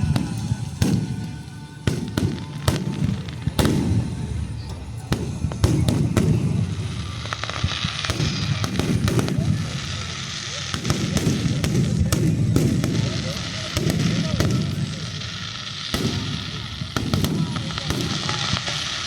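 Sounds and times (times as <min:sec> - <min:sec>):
fireworks bangs: 0:00.0 - 0:19.0
fireworks crackling: 0:00.0 - 0:19.0.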